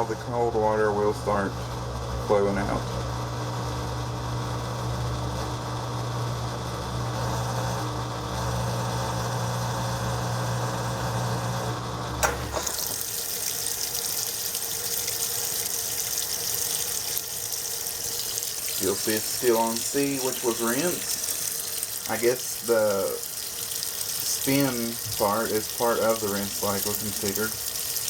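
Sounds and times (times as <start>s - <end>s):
washing machine motor humming: 0.0s - 28.0s
machine switch click: 12.2s - 12.6s
water rushing into tub: 12.2s - 28.0s.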